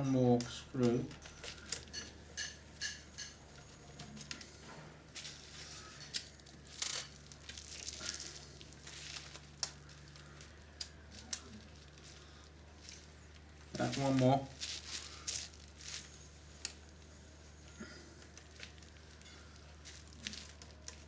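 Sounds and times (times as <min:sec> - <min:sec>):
light clicks of parts handled: 0:14.7 - 0:17.0.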